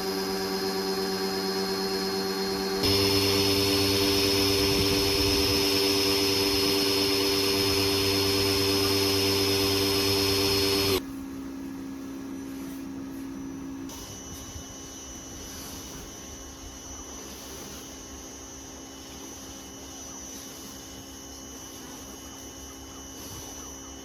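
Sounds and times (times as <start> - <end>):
machine motor whining: 0.0 - 11.0.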